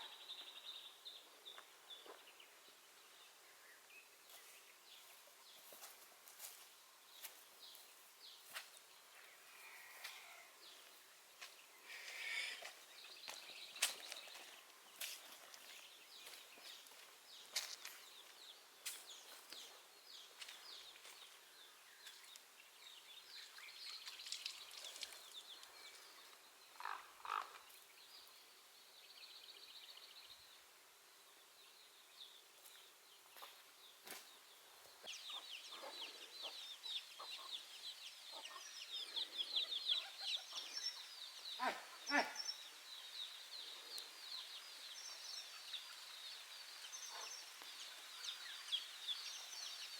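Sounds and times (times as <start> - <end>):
chickens clucking: 35.3 - 37.6.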